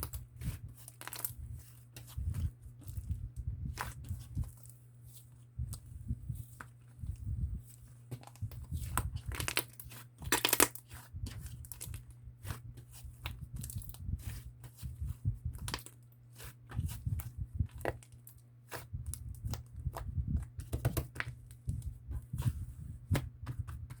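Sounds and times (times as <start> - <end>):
slime clicking and squelching: 8.1 - 21.6.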